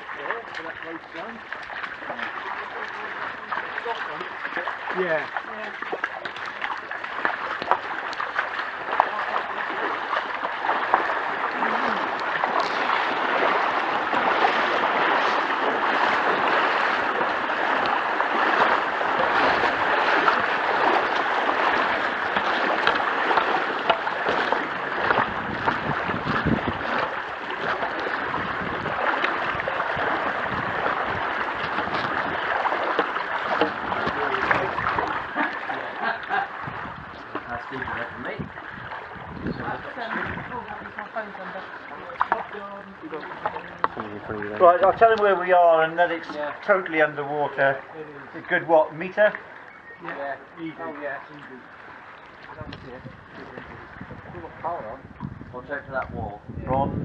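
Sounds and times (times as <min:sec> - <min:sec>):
floodwater splashing: 0:00.0 - 0:57.0.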